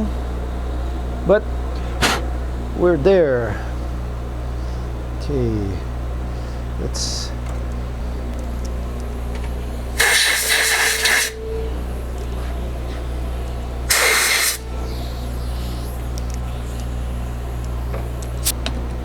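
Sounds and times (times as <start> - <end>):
steady low hum: 0.0 - 19.0
compressed air blow gun bursts: 8.8 - 18.6.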